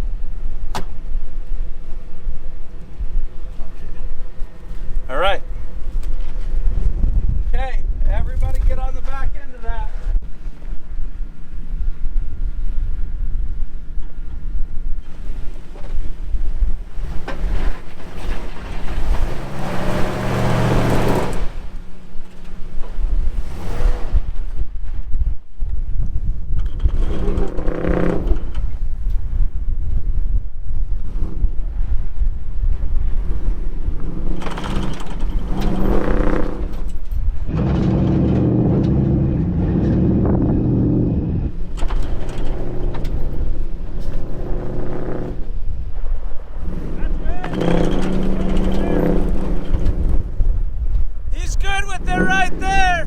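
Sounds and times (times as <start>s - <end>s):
wind buffeting microphone: 0.0s - 51.7s
vehicle engine under load: 13.8s - 24.5s, 32.9s - 50.7s.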